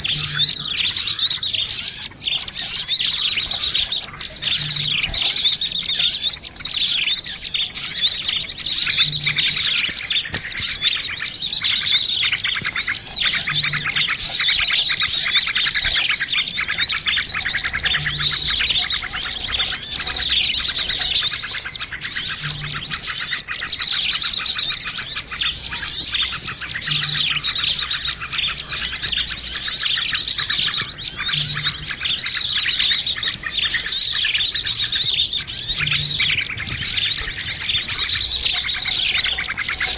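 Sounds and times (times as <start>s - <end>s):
chorus of small birds chirping: 0.0s - 39.9s.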